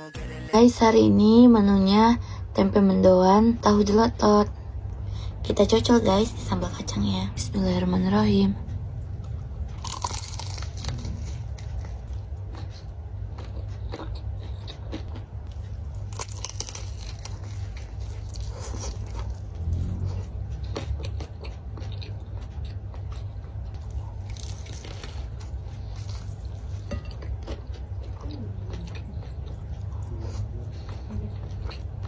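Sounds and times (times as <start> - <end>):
wet chewing: 9.0 - 32.0
crisp crunching: 9.8 - 12.2, 15.6 - 19.8, 23.8 - 27.0
biting into fried food: 9.8 - 31.0.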